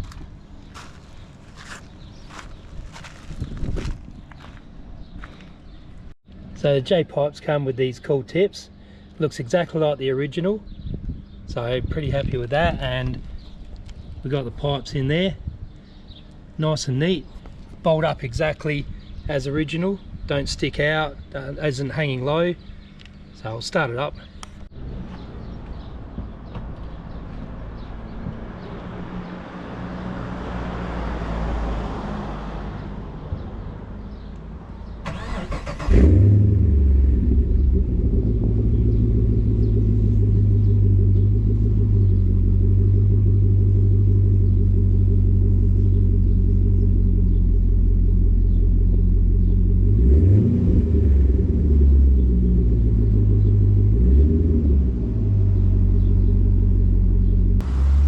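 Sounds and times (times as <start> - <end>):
car engine idling: 35.1 - 58.0
engine throttle blips: 35.1 - 58.0.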